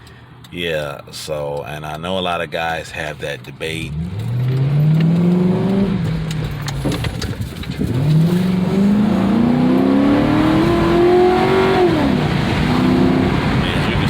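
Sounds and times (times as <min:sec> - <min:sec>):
car engine accelerating hard: 0:03.8 - 0:14.0.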